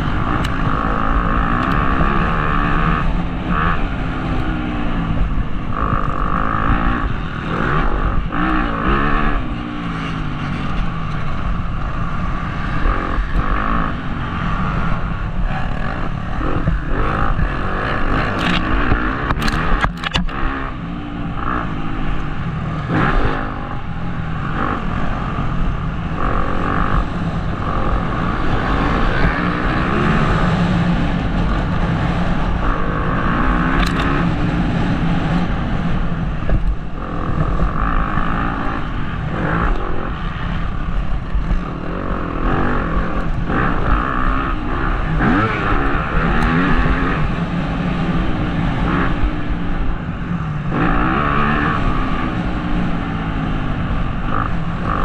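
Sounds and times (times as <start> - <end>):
motocross engine revving: 0.0 - 55.0
wind rush: 0.0 - 55.0
sharp ticks: 14.3 - 20.6, 33.3 - 34.6.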